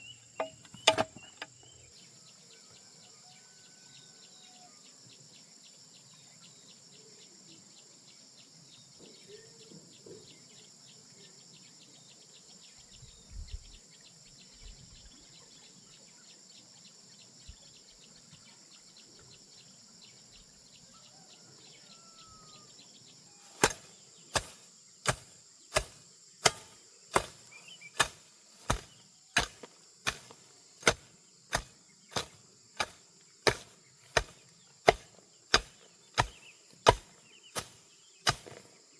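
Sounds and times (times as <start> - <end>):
insects chirring: 0.0 - 2.0, 21.9 - 38.9
blade chopping wood: 0.4 - 1.7, 23.5 - 38.9.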